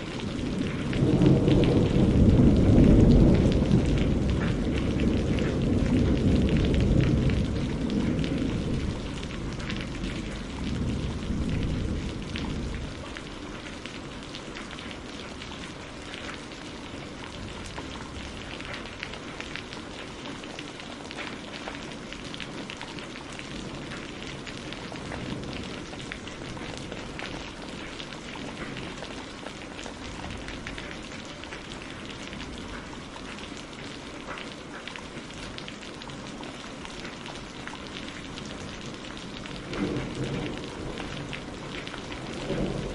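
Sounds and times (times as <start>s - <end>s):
low thunder rumble: 0.0s - 14.2s, 38.6s - 42.9s
rain on greenhouse roof: 0.0s - 42.9s.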